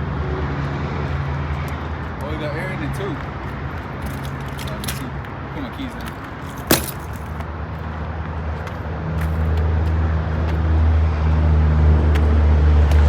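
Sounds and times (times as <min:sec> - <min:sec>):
low engine hum: 0:09.0 - 0:13.0.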